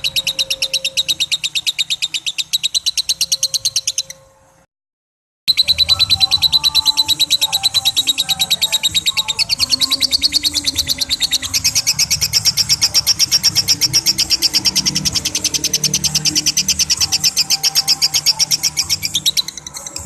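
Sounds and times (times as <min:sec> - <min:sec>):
lovebird chattering: 0:00.0 - 0:04.3, 0:05.5 - 0:20.0.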